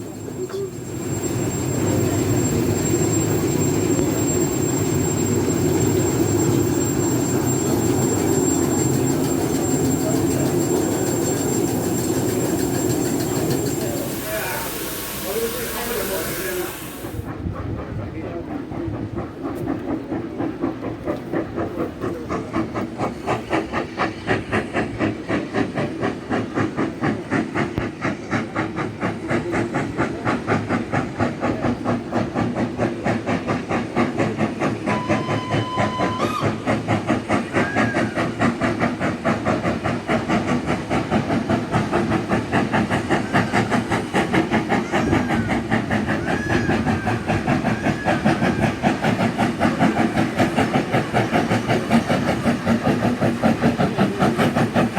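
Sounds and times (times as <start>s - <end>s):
steam hiss: 0.0s - 17.9s, 18.5s - 54.9s
steam locomotive exhaust beating: 0.0s - 54.9s
steam whistle: 34.8s - 36.7s.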